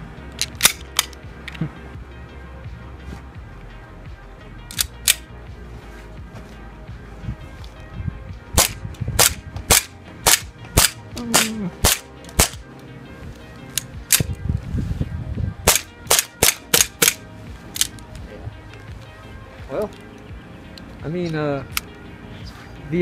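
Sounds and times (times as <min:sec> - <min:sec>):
airsoft gun shots: 0:08.6 - 0:12.6, 0:15.7 - 0:17.2.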